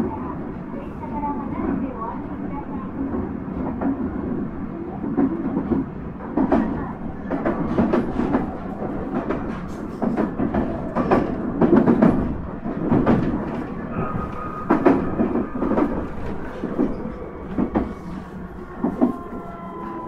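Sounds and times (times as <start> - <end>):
train rumble inside car: 0.0 - 20.0
wheels clacking over rail joints: 5.1 - 18.1.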